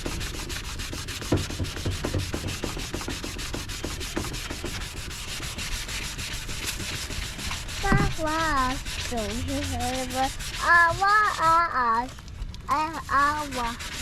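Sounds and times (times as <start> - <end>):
sandpaper rasping on plastic: 0.0 - 12.1, 12.7 - 14.0
child's wordless voice: 7.8 - 14.0.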